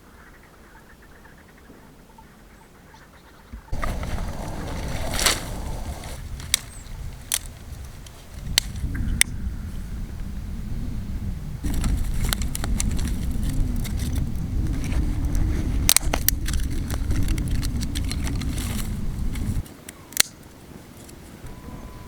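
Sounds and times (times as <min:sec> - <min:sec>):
vehicle driving rumble: 0:03.7 - 0:07.4, 0:11.6 - 0:19.6.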